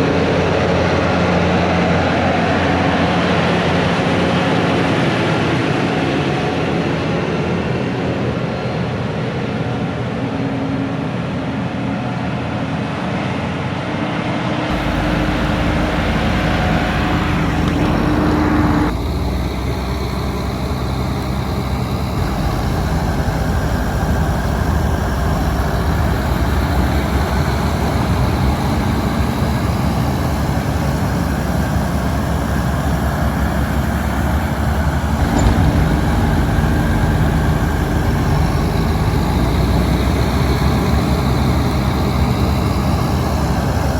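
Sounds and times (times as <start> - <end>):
diesel harvest machinery running: 14.7 - 43.9.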